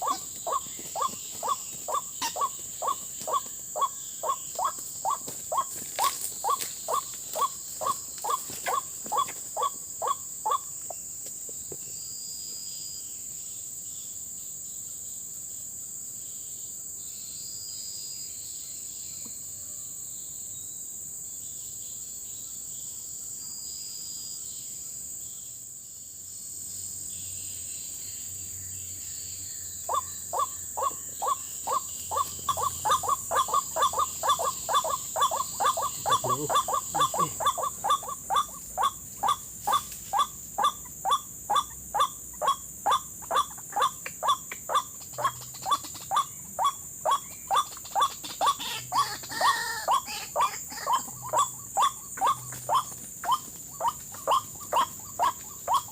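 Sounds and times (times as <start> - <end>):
waterhen calling: 0.0 - 10.6, 29.9 - 55.9
insects hissing: 0.0 - 55.9.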